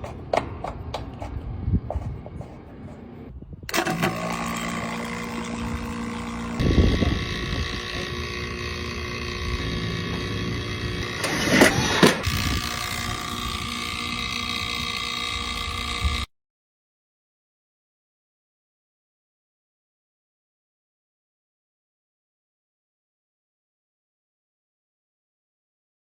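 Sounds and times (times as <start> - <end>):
machine humming: 1.9 - 16.3.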